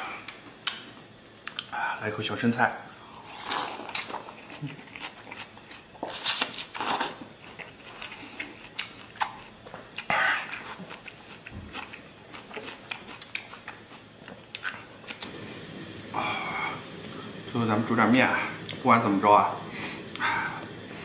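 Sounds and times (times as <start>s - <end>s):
wet mouth clicks: 1.4s - 1.7s.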